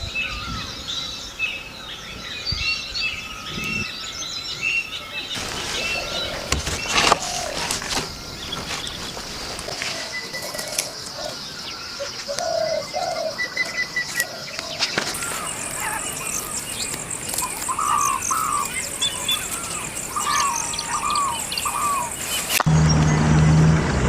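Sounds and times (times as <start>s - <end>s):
birds chirping: 0.0s - 24.0s
high insect-like buzz: 15.1s - 22.7s
low motor hum: 15.2s - 24.0s.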